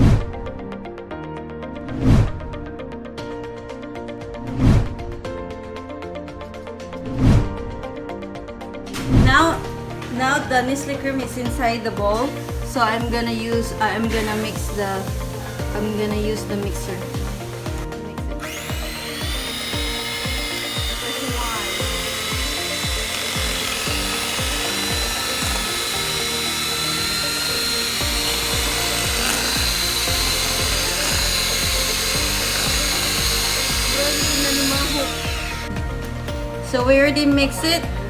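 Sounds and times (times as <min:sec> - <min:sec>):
background music with beat: 0:00.0 - 0:38.0
electric mixer whirring: 0:09.0 - 0:36.7.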